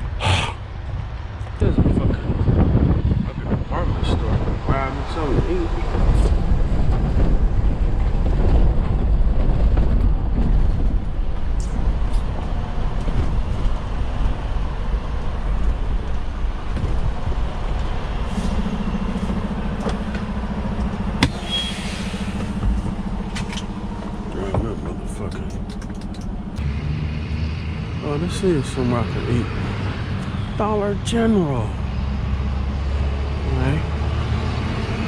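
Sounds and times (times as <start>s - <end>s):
truck engine and road rumble: 0.0s - 35.0s
steady low hum: 5.9s - 26.8s.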